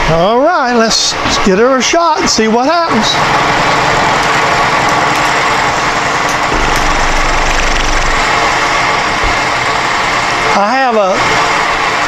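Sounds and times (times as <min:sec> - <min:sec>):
milling machine running: 0:03.2 - 0:10.6
low rumble: 0:06.3 - 0:09.5.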